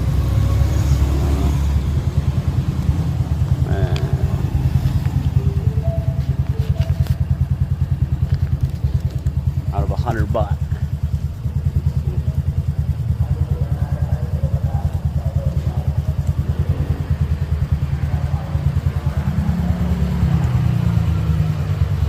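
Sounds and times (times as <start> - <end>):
motorbike engine idling: 0.0 - 22.0
faint voices: 2.8 - 7.6, 10.6 - 21.0.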